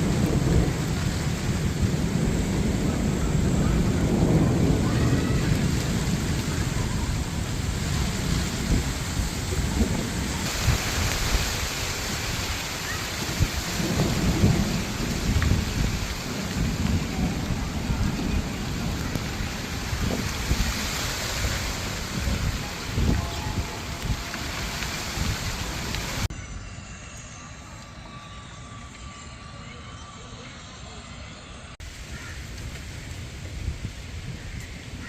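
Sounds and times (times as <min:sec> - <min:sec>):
heavy rain: 0:00.0 - 0:26.3, 0:31.7 - 0:35.0
thunder rumbling: 0:00.0 - 0:26.4.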